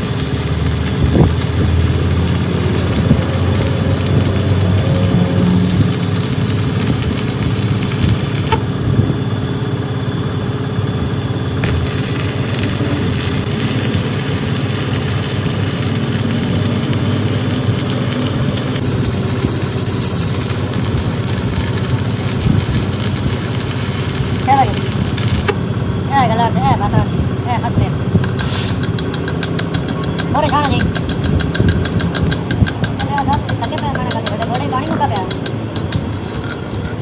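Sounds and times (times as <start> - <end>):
engine running loudly: 0.0 - 26.1.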